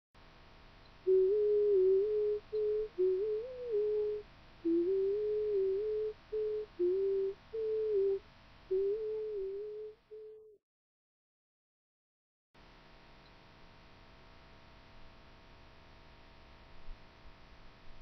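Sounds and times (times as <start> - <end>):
electronic sine tone melody: 1.0 - 10.5.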